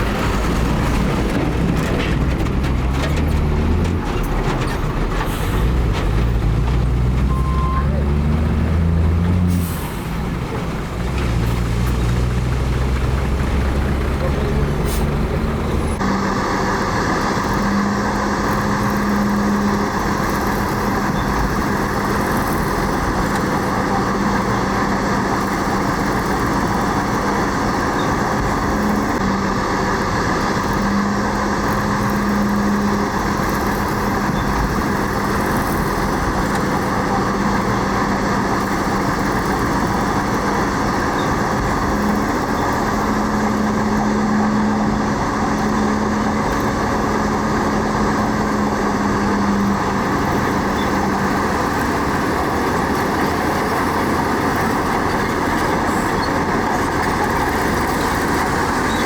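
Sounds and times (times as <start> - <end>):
diesel engine of heavy machinery: 0.0 - 59.0.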